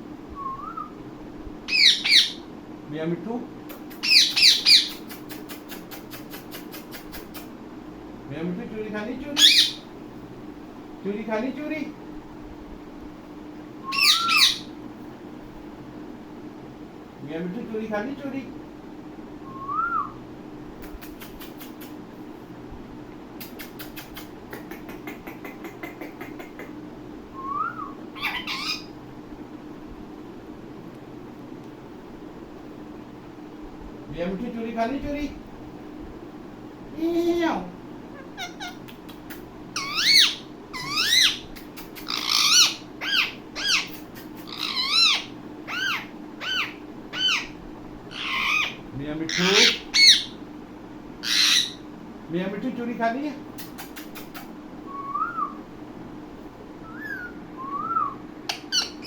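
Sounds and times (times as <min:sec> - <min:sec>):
parrot whistle: 0:00.4 - 0:01.0, 0:13.8 - 0:14.7, 0:19.4 - 0:20.2, 0:27.4 - 0:28.9, 0:54.9 - 0:55.6, 0:56.8 - 0:59.0
parrot squawk: 0:01.7 - 0:02.4, 0:04.0 - 0:05.1, 0:09.4 - 0:09.8, 0:13.9 - 0:14.7, 0:27.8 - 0:29.0, 0:38.2 - 0:38.9, 0:39.8 - 0:50.4, 0:51.2 - 0:51.8, 0:56.8 - 0:59.0
parakeet calling: 0:01.7 - 0:02.5, 0:03.9 - 0:07.3, 0:09.3 - 0:09.9, 0:13.8 - 0:14.8, 0:27.4 - 0:29.0, 0:38.1 - 0:50.4, 0:51.2 - 0:51.9, 0:53.6 - 0:55.6, 0:56.8 - 0:59.0
parrot clicking chatter: 0:03.7 - 0:07.5, 0:20.8 - 0:22.0, 0:23.4 - 0:26.8, 0:28.2 - 0:28.9, 0:38.2 - 0:50.3, 0:53.5 - 0:54.6.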